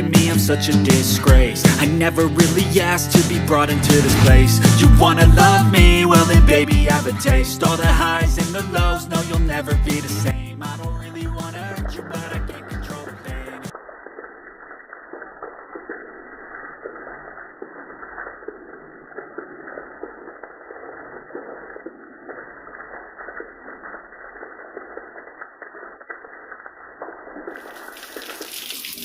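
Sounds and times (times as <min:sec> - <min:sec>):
rain ticking on leaves: 0:20.4 - 0:29.0.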